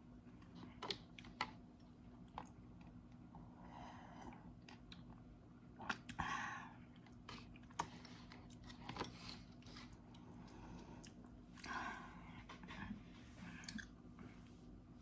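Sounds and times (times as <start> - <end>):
quiet chewing: 4.1 - 14.5.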